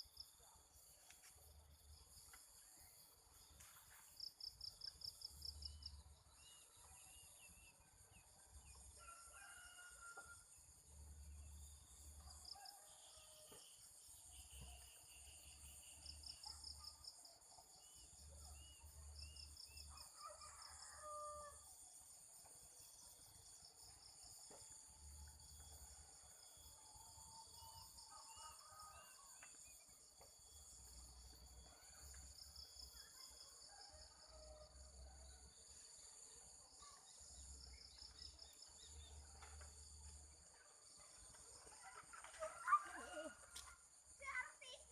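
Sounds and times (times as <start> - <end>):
insects buzzing and trilling: 0.0 - 34.9, 35.5 - 44.9
distant rooster crowing: 8.9 - 10.5, 19.9 - 21.7.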